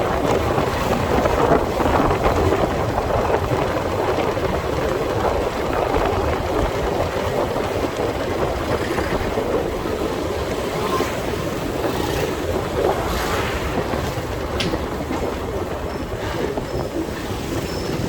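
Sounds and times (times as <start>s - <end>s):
motorcycle wind and road noise: 0.0s - 18.0s.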